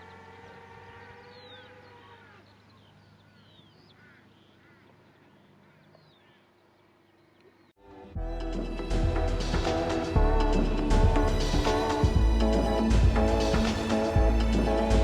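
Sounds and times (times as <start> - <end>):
birds chirping: 0.0 - 7.8, 8.5 - 15.0
steady hum: 8.2 - 15.0.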